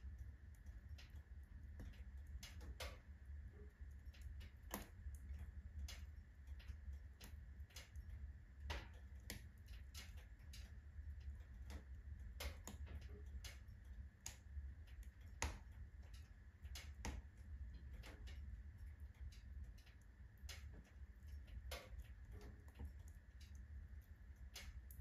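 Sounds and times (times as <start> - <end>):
firewood crackling and popping: 0.0 - 25.0
low steady rumble: 0.0 - 25.0.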